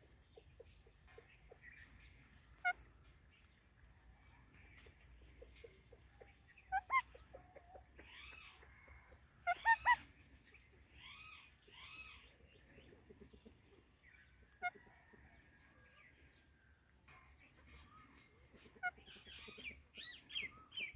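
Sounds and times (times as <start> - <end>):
parrots squawking: 6.7 - 7.2, 9.4 - 10.0
soft arching parrot calls: 6.7 - 7.3, 9.4 - 10.1.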